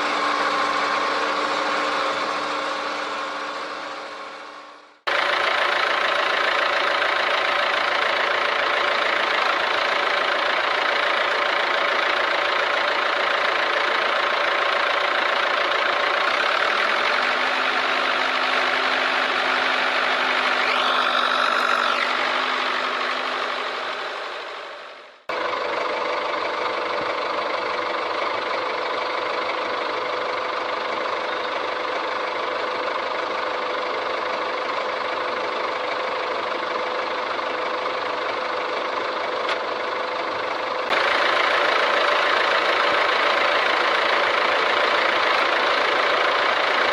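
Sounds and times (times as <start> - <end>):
small motor running: 20.3 - 22.9.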